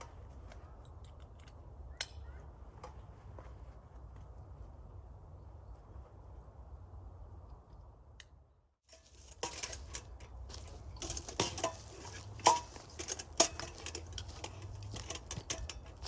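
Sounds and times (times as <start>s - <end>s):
clicks and light clinks: 8.9s - 16.0s.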